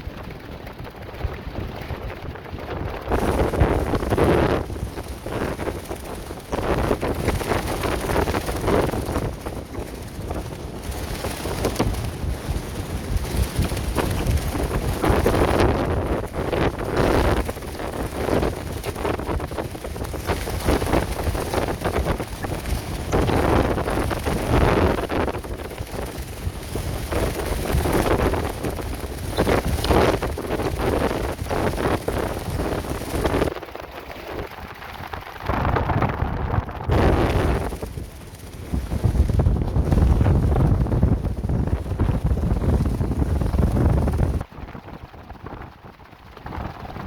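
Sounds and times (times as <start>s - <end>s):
plastic sheeting flapping: 0.0s - 47.0s
strong wind gusting: 0.0s - 47.0s
wind rumble on microphone: 0.0s - 47.0s.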